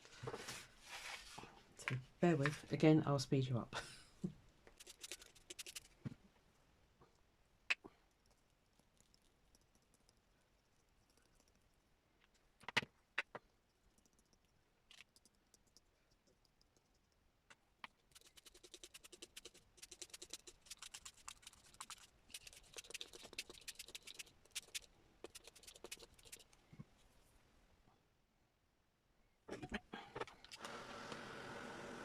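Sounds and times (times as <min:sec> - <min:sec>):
dabbing and scratching on paper: 0:04.7 - 0:06.0, 0:17.9 - 0:26.6.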